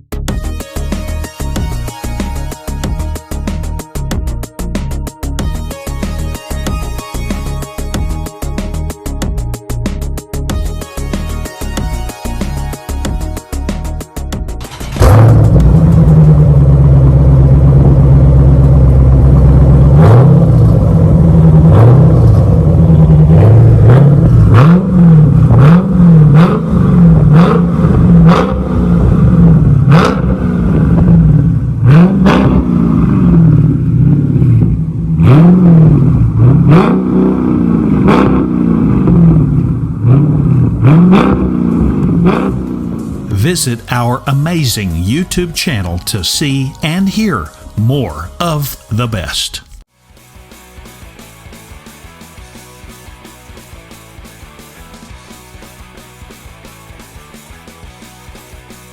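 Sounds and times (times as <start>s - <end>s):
car engine idling and revving: 13.2s - 43.3s.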